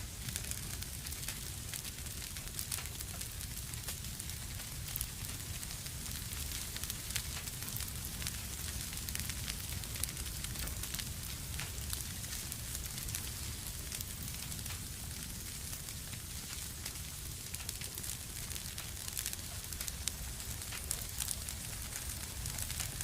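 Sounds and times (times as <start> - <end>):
low rumble of flames: 0.0 - 23.0
wood fire crackling: 0.0 - 23.0.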